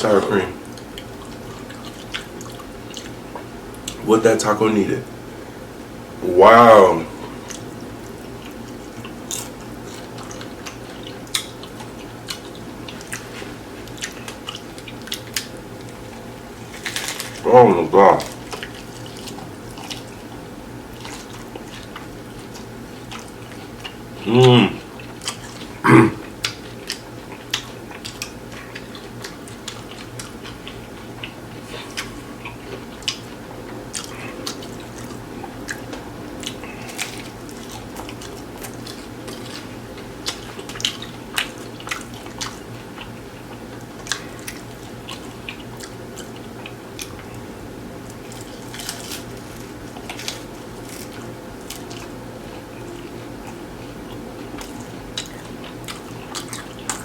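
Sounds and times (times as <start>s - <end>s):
wet chewing and mouth clicks: 0.6s - 4.0s, 7.4s - 17.4s, 18.3s - 24.0s, 24.8s - 57.0s
person humming: 24.2s - 24.9s, 25.9s - 26.3s.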